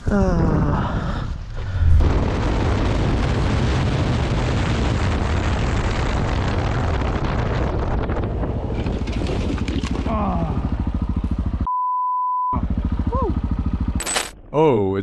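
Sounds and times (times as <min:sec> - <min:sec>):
wind rushing over microphone: 0:00.9 - 0:10.0
motorcycle riding at speed: 0:08.0 - 0:11.7, 0:12.6 - 0:14.3.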